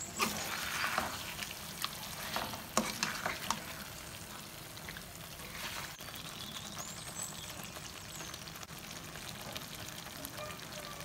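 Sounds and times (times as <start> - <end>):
sauce sizzling in a pan: 0.0 - 11.0.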